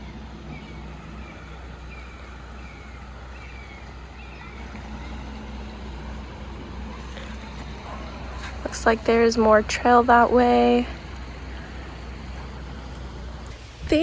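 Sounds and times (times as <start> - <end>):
bird chirping: 0.0 - 5.6
low outdoor rumble: 0.0 - 14.0.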